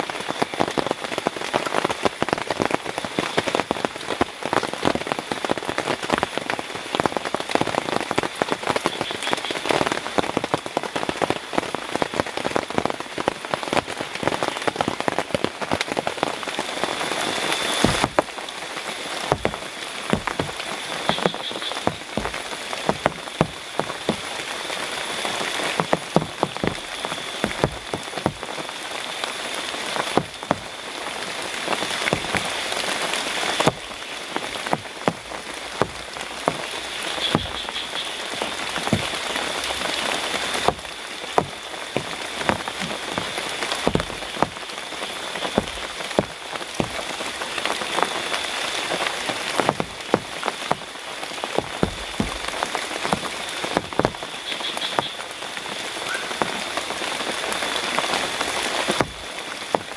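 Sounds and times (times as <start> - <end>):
heavy rain falling: 0.0 - 59.9
high-pitched frog chorus: 19.3 - 29.5, 35.8 - 49.0, 51.6 - 56.4.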